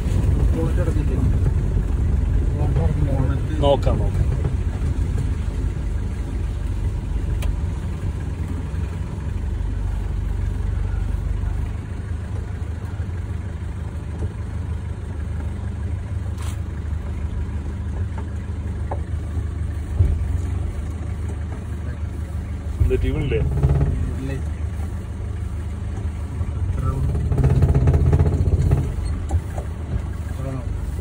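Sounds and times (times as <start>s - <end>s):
car engine running: 0.0s - 31.0s
short thump: 19.9s - 20.7s.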